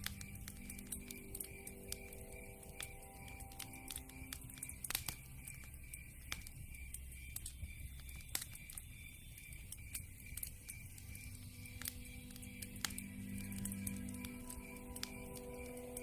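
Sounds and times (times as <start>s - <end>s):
low rumble of flames: 0.0s - 16.0s
wood fire crackling: 0.0s - 16.0s.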